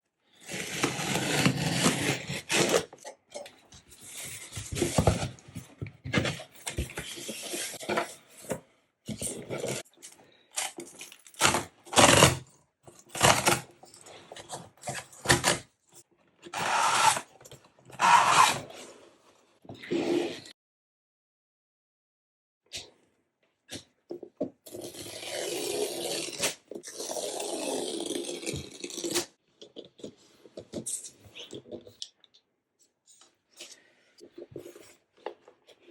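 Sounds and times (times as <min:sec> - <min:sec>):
cardboard packaging rubbing and scraping: 0:00.4 - 0:02.9, 0:16.6 - 0:17.3, 0:18.0 - 0:19.1.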